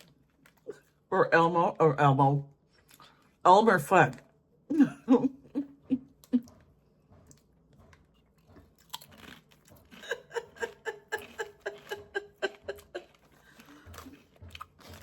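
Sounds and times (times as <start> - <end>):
person chewing crunchy chips: 0.0 - 1.1, 7.3 - 15.0.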